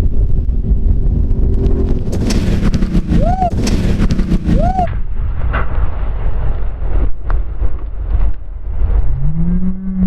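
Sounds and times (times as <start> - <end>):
truck engine rumble: 0.0 - 5.0
wind noise on microphone: 0.0 - 10.0.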